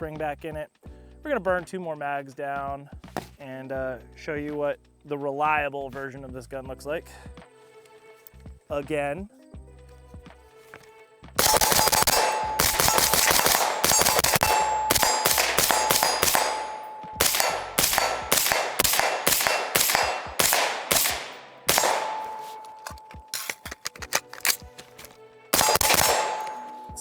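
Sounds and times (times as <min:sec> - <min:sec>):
suppressed rifle shots: 0:11.4 - 0:24.9, 0:25.5 - 0:27.0
metallic ring: 0:11.6 - 0:18.6, 0:21.2 - 0:24.6, 0:25.6 - 0:27.0.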